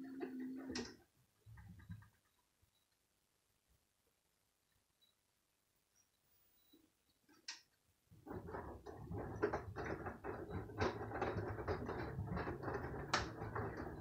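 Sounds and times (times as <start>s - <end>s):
washing machine motor hum: 8.1s - 14.0s
wet laundry tumbling in drum: 8.1s - 14.0s.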